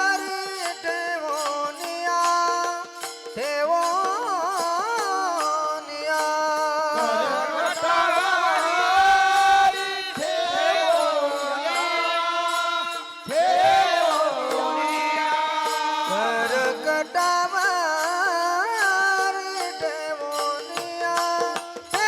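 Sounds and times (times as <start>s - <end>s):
man singing devotional song: 0.0s - 22.0s.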